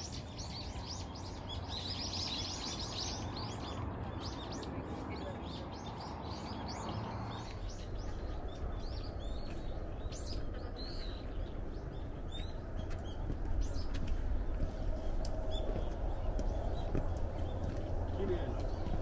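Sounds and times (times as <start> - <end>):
small birds chirping: 0.0 - 19.0
steady low rumble: 7.4 - 19.0.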